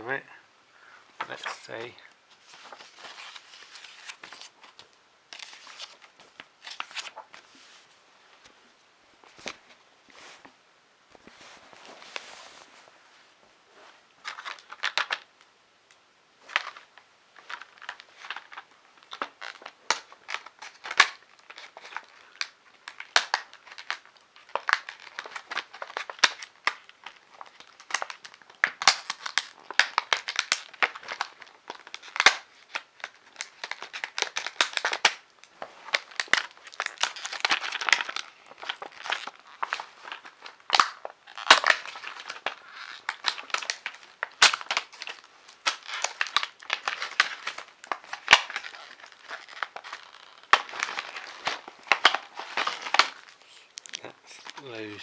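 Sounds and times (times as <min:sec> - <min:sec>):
packaging crinkling and tearing: 0:01.2 - 0:07.4, 0:14.2 - 0:15.3, 0:16.4 - 0:55.0.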